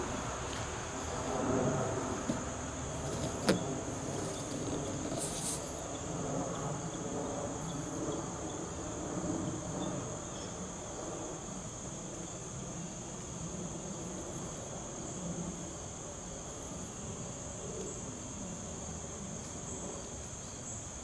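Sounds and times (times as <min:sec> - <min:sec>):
low background rumble: 0:00.0 - 0:10.1.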